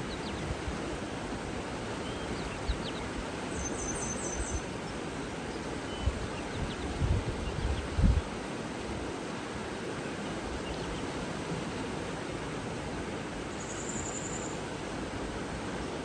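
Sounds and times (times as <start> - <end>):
running water rushing: 0.0 - 16.0
small birds chirping: 2.1 - 4.6
wind rumble on microphone: 5.9 - 8.4.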